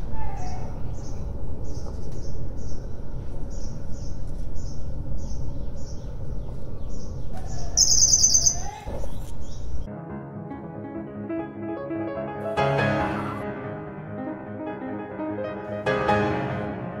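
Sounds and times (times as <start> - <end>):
bird chirping: 0.0 - 9.9
low background rumble: 0.0 - 9.9.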